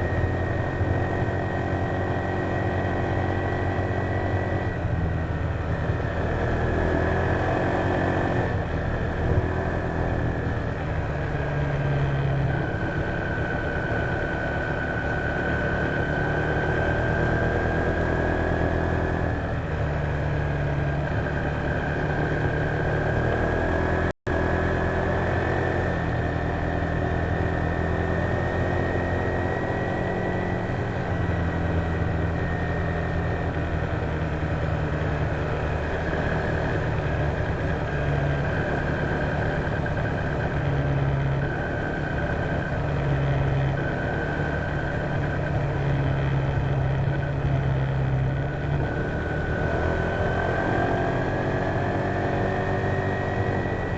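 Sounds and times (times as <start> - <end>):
high engine whine: 0.0 - 53.9
scooter engine running: 24.6 - 53.9.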